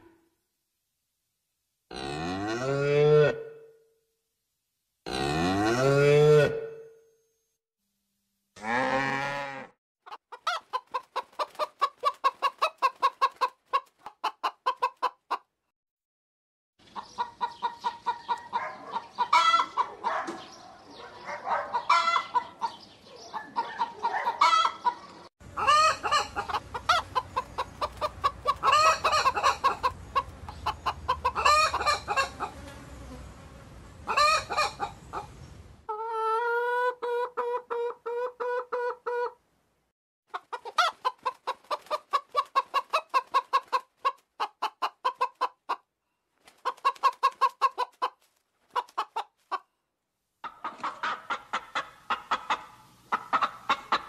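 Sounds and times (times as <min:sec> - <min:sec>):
cow mooing: 0:01.9 - 0:03.5, 0:05.1 - 0:06.6, 0:08.6 - 0:09.7
chickens clucking: 0:10.1 - 0:15.5, 0:16.8 - 0:32.9, 0:34.0 - 0:39.4, 0:40.3 - 0:45.9, 0:46.5 - 0:49.7, 0:50.4 - 0:54.0
chickens squawking: 0:10.1 - 0:15.5, 0:16.8 - 0:32.6, 0:34.0 - 0:39.4, 0:40.3 - 0:45.9, 0:46.5 - 0:49.6, 0:50.4 - 0:54.0.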